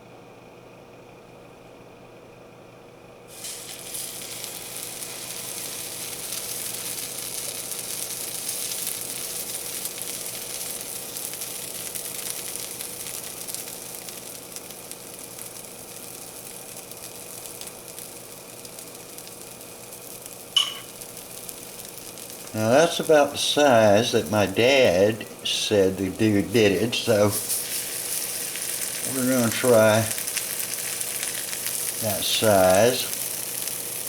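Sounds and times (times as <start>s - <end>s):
batter sizzling in hot oil: 3.3s - 34.0s.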